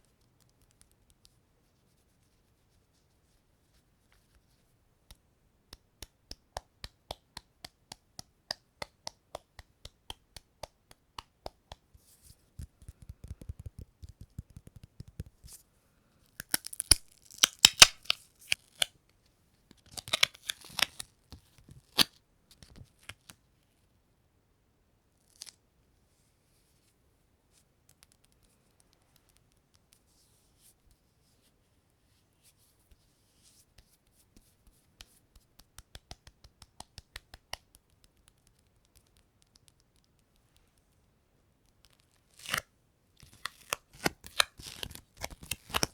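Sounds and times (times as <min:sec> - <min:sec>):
sticky surface clicking: 0:12.6 - 0:15.6
tearing sound: 0:43.2 - 0:45.9.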